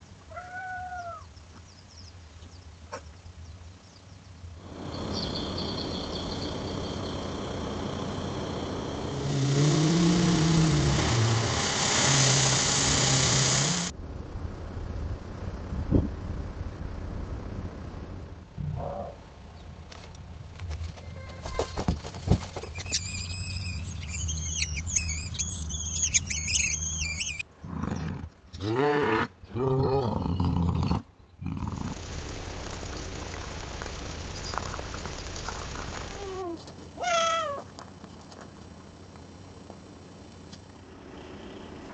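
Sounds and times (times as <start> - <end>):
low steady rumble: 0.0 - 21.4, 30.6 - 41.9
cat yowling: 0.3 - 1.3, 36.2 - 37.7
truck engine rumbling: 4.6 - 21.4, 22.4 - 27.5
high chirping: 4.8 - 8.9, 22.7 - 27.4.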